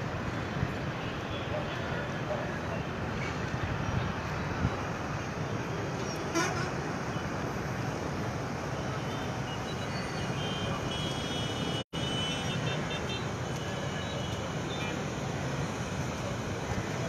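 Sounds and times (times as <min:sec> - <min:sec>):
traffic on a waterlogged street: 0:00.0 - 0:17.0
vehicle horn tooting: 0:06.3 - 0:06.8, 0:10.4 - 0:13.2.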